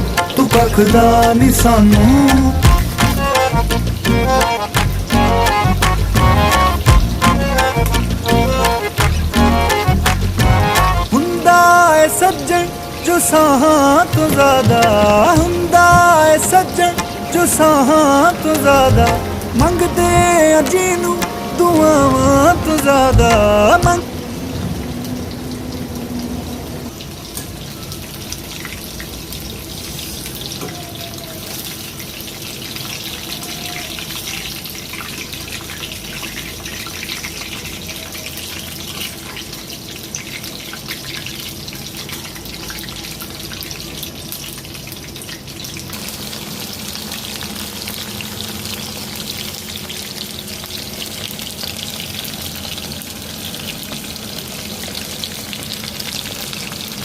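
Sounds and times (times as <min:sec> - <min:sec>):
chicken sizzling in hot oil: 0:25.0 - 0:57.0.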